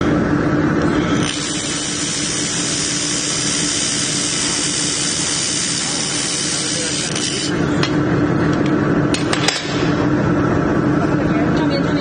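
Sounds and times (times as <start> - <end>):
laser welder hiss: 1.0 - 7.6.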